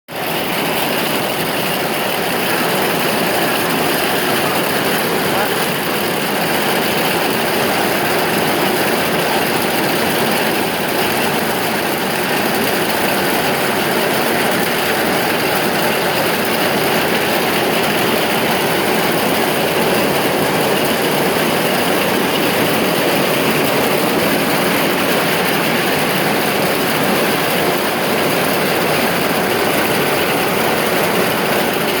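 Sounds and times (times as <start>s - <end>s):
heavy rain hissing: 0.2s - 32.0s.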